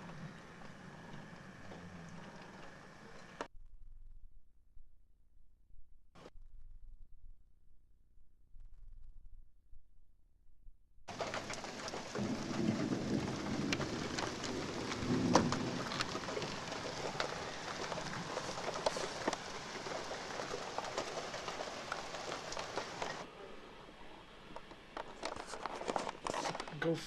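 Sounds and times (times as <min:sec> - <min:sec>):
heavy rain falling: 0:00.0 - 0:03.5, 0:11.1 - 0:23.3, 0:25.0 - 0:26.7
thunder rumbling: 0:11.1 - 0:23.9.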